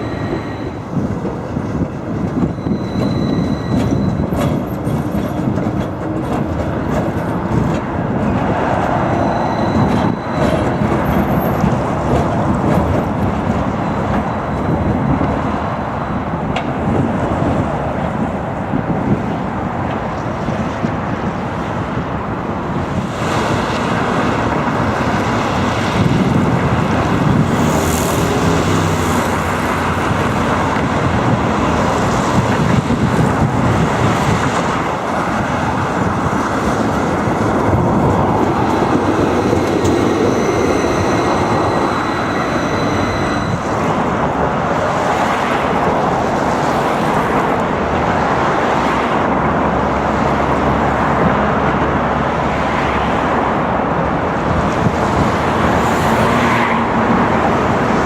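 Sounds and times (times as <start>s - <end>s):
tram wheels rumbling on rails: 0.0s - 58.0s
thin high tones: 38.0s - 44.4s.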